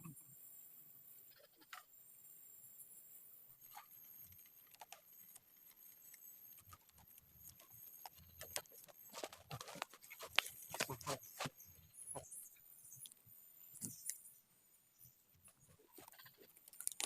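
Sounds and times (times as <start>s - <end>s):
faint irregular taps and crackles: 3.6s - 14.3s, 15.0s - 17.0s.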